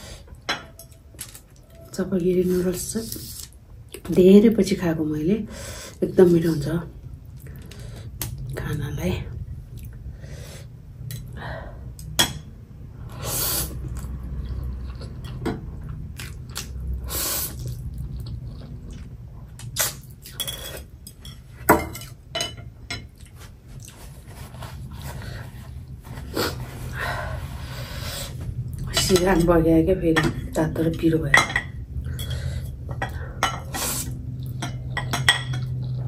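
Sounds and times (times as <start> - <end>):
person chewing noodles: 13.1 - 21.0, 23.1 - 26.6, 33.8 - 35.0, 35.6 - 36.0.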